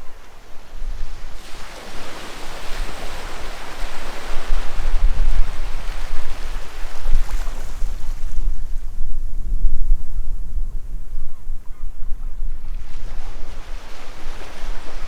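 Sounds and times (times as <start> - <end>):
sea waves breaking on shore: 0.0 - 8.9, 12.6 - 15.0
wind rumbling on microphone: 0.0 - 15.0.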